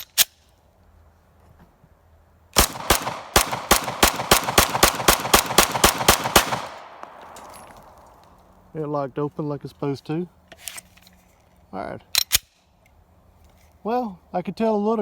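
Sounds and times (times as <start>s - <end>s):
pistol fired rapidly: 2.6s - 8.0s.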